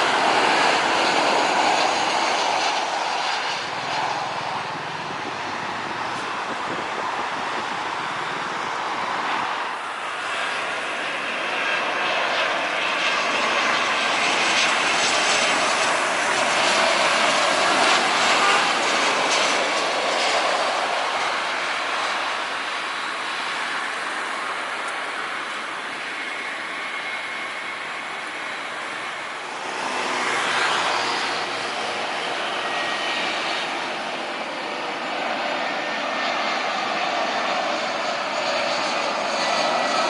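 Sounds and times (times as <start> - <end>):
jet engine roar: 0.0 - 40.0.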